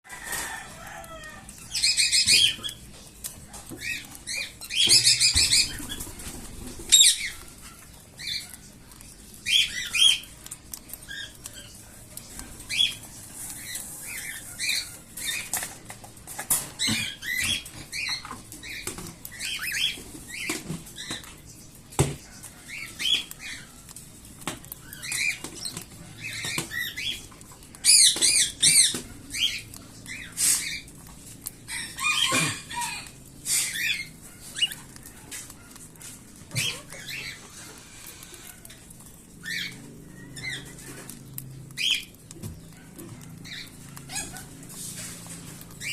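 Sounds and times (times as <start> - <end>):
chicks raspy begging calls: 31.5 - 42.2, 42.8 - 44.8.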